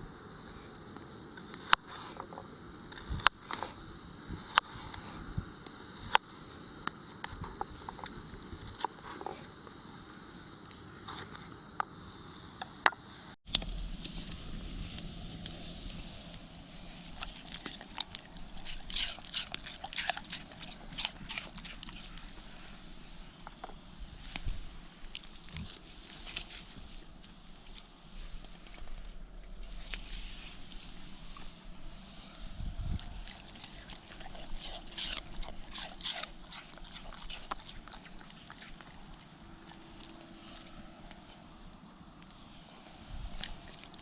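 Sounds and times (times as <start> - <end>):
dog chewing and crunching: 1.4 - 11.9, 17.0 - 22.5, 32.9 - 44.0.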